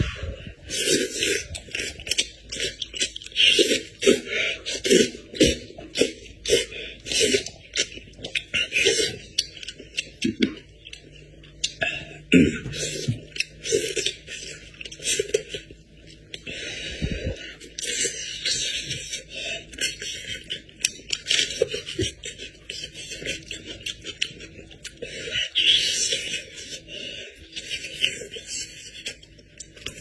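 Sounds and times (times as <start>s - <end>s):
chewing mouth sounds: 0.7s - 12.0s.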